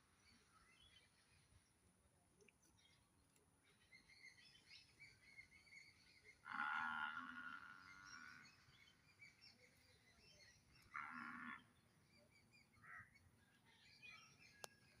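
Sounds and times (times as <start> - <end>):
faint bird chirps: 2.4 - 15.0
animal call: 6.4 - 8.7, 10.8 - 11.7.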